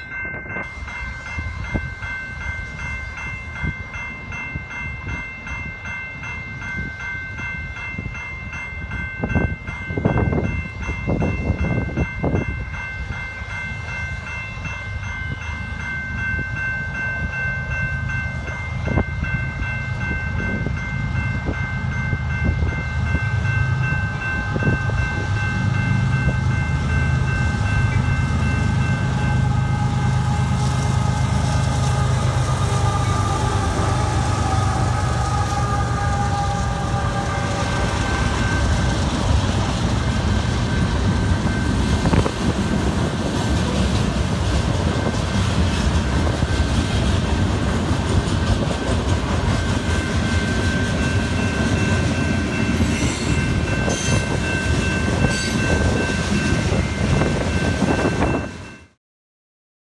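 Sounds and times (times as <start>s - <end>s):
crossing bells ringing: 0.0s - 59.0s
locomotive engine rumbling: 13.0s - 58.6s
train horn: 26.4s - 39.6s.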